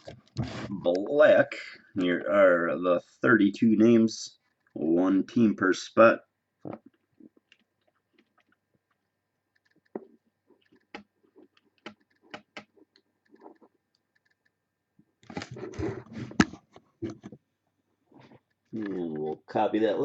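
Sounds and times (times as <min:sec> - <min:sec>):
computer mouse and keyboard clicks: 0:09.5 - 0:14.6.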